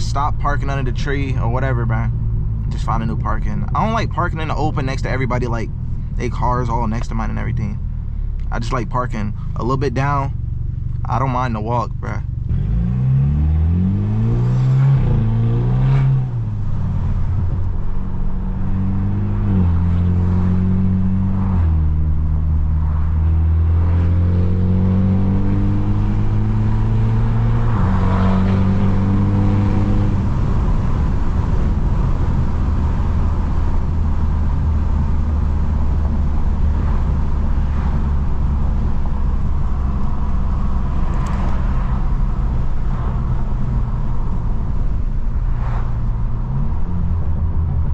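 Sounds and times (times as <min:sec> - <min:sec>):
car exhaust accelerating with gear shifts: 0:00.0 - 0:47.9.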